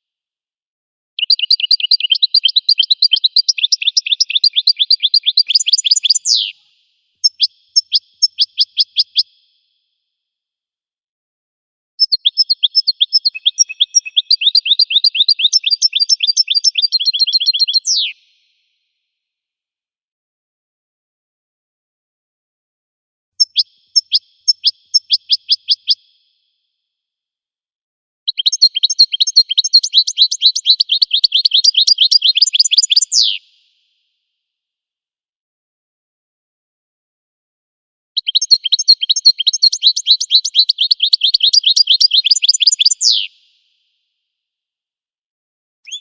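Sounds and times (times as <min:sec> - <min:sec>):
finch twittering song: 0:01.2 - 0:06.6, 0:07.2 - 0:09.4, 0:12.0 - 0:18.3, 0:23.4 - 0:26.0, 0:28.3 - 0:33.4, 0:38.2 - 0:43.3.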